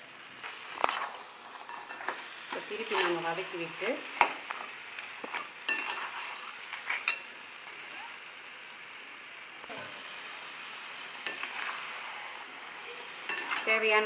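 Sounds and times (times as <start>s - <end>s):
food sizzling in a pan: 0.0s - 14.0s
ladle clicking and scraping pan: 5.7s - 7.3s, 13.3s - 13.7s.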